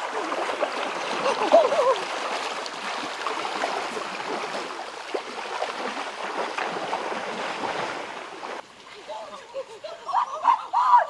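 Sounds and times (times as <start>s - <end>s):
small water splashes: 0.0s - 10.2s
water trickling and gurgling: 0.0s - 10.2s.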